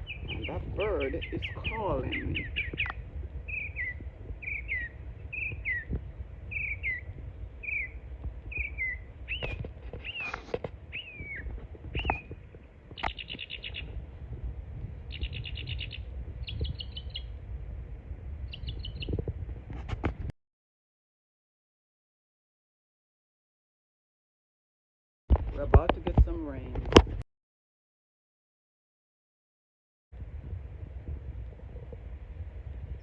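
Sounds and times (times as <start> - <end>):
songbird arching notes: 0.0 - 12.4, 13.0 - 14.0, 15.0 - 17.4, 18.5 - 19.1
songbird chirps: 0.0 - 14.0, 15.1 - 17.4, 18.5 - 19.2
songbird trilled rattles: 0.0 - 14.0, 15.1 - 17.3, 18.5 - 19.2.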